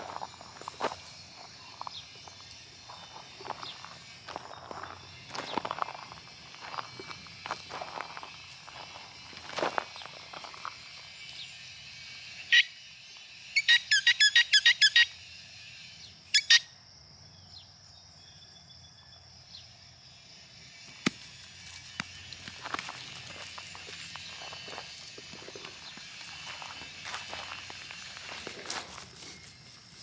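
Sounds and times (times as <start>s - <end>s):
bird chirping: 11.2s - 19.8s.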